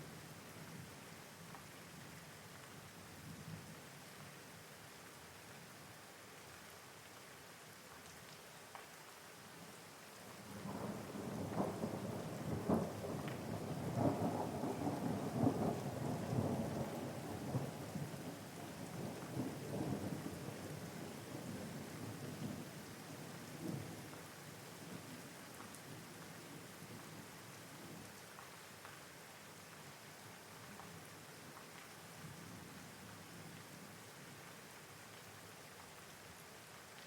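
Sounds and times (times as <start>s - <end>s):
steady rain: 0.0s - 37.0s
crackling thunder roll: 10.6s - 22.6s.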